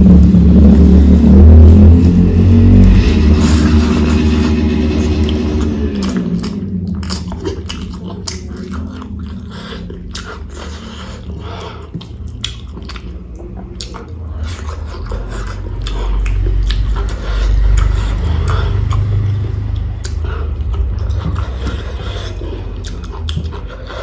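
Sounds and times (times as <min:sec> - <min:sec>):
low rumble: 0:00.0 - 0:24.0
wet mouth sounds: 0:00.0 - 0:24.0
close chewing crunchy food: 0:00.2 - 0:24.0.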